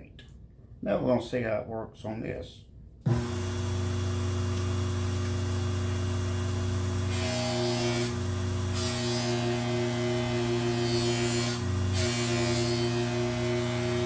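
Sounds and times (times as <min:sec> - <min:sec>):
polishing machine motor hum: 0:03.1 - 0:14.0
knife blade rubbing polishing wheel: 0:08.8 - 0:14.0.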